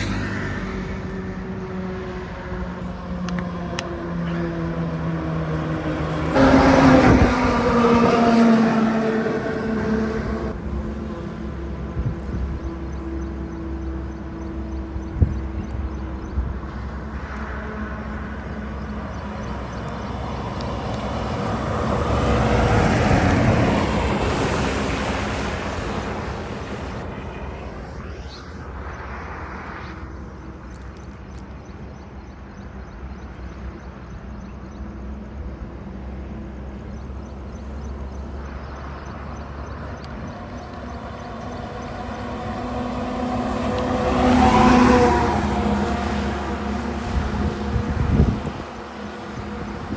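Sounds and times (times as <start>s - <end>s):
heavy trucks passing: 0.0s - 11.8s, 16.7s - 29.0s, 39.1s - 49.9s.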